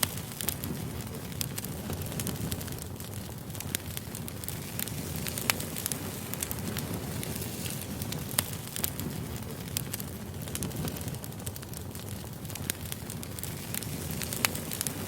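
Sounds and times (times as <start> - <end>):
campfire crackling and popping: 0.0 - 15.0
low fire rumble: 0.0 - 15.0.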